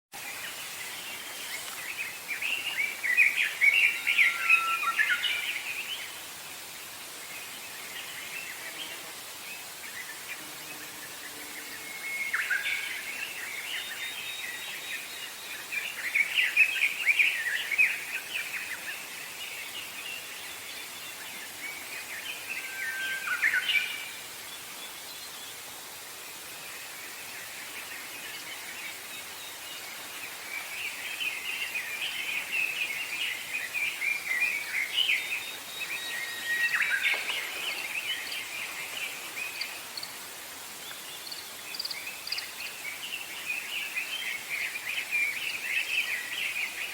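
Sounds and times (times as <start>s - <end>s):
outdoor background hiss: 0.1s - 46.9s
songbirds chirping and trilling: 26.8s - 46.9s.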